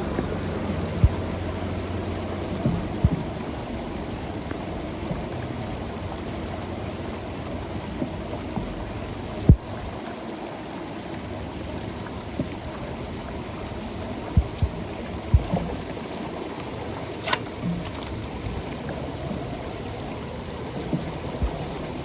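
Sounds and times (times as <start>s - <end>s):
low thumps: 0.0s - 3.6s, 9.5s - 9.7s, 14.4s - 15.8s
floodwater rushing: 0.0s - 22.0s
rain: 0.0s - 22.0s.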